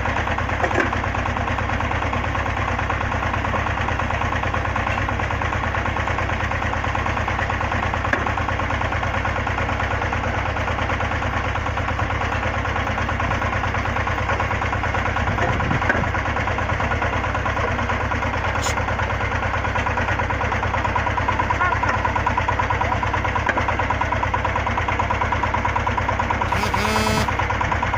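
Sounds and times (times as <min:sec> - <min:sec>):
drilling rig engine running: 0:13.2 - 0:27.9.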